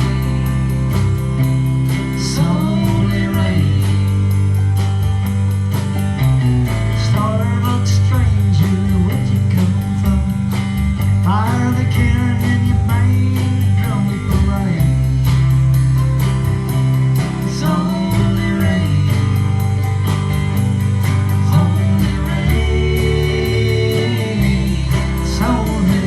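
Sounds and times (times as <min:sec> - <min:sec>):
guitar lead with bending notes: 0:00.0 - 0:26.0
steady bass line: 0:00.0 - 0:26.0.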